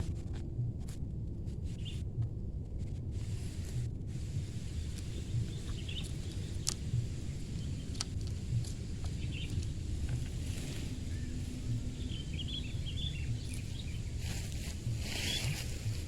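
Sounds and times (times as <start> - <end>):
soft low pulse: 0.0 - 16.0
steady low rumble: 0.0 - 16.0
faint high bird chirps: 10.6 - 15.7.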